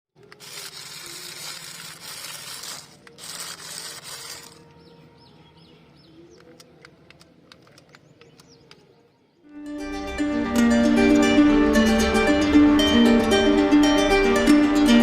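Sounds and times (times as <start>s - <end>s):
sharp clicks: 6.3s - 8.9s.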